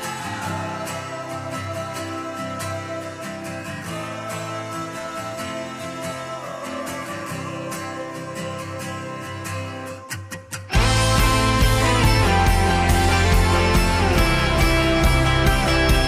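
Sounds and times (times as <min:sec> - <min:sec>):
guitar background music with beat: 0:07.9 - 0:16.0.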